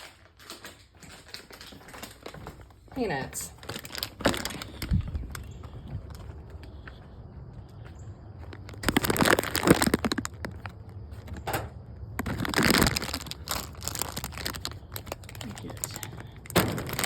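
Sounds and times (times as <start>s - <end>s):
peanuts rustling in a bag: 2.2s - 6.2s, 8.5s - 11.4s, 12.2s - 17.0s.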